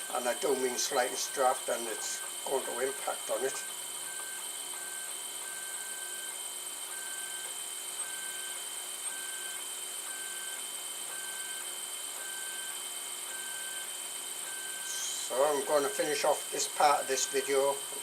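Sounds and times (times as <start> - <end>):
high steady whine: 0.0 - 6.3, 14.4 - 18.0
printer whirring hiss: 0.0 - 18.0
stepper motor tones: 0.0 - 18.0.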